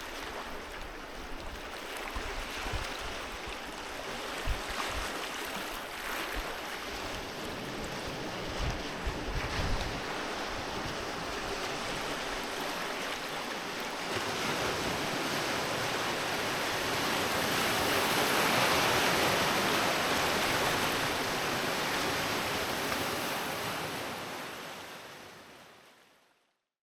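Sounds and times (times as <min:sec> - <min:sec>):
wind on microphone: 0:00.0 - 0:13.4
sea waves breaking on beach: 0:00.0 - 0:26.2.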